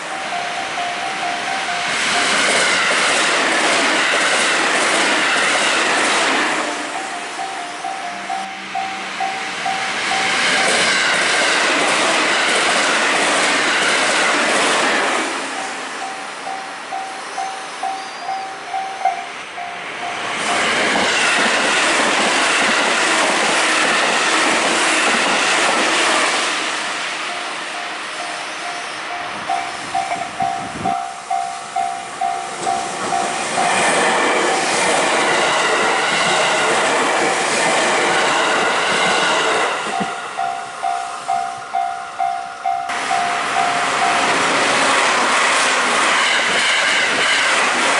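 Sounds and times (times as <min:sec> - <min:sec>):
train passing with clattering wheels: 0:00.0 - 0:47.9
level crossing bell ringing: 0:07.0 - 0:10.4, 0:27.3 - 0:33.4, 0:39.9 - 0:44.3.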